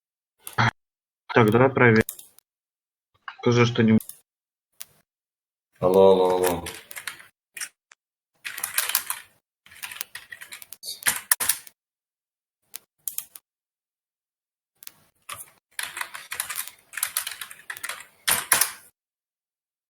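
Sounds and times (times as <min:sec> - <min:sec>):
rapid clicking and crackling: 0:05.8 - 0:07.7, 0:08.4 - 0:11.7, 0:14.8 - 0:18.8.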